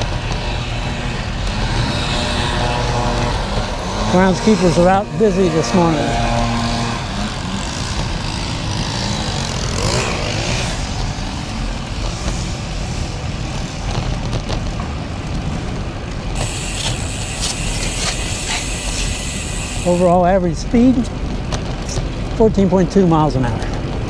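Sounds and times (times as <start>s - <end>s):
bicycle freewheel ticking: 0.0s - 10.0s, 16.3s - 21.1s
road noise: 0.0s - 24.0s
wind rushing over microphone: 0.0s - 24.0s.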